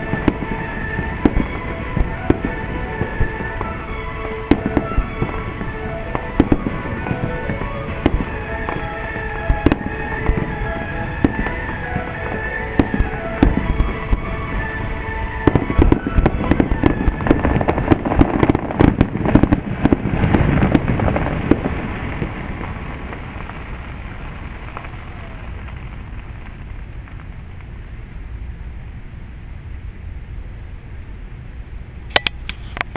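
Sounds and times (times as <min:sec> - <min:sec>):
music playing: 0:00.0 - 0:20.7
fireworks bangs and crackling: 0:00.0 - 0:28.2
low background noise: 0:00.0 - 0:32.9.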